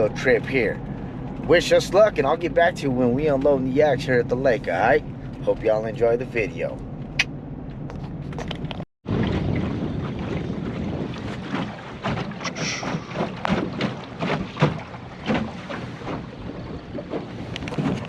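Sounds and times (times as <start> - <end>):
vehicle road noise: 0.0 - 18.0
wind buffeting microphone: 8.2 - 18.0
knocks and splashes: 9.0 - 18.0.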